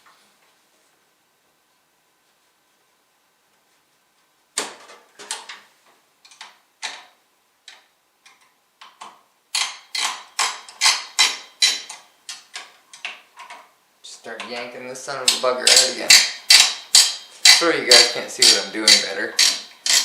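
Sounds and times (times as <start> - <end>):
computer hardware clicking and rattling: 9.6 - 13.7, 15.6 - 20.0.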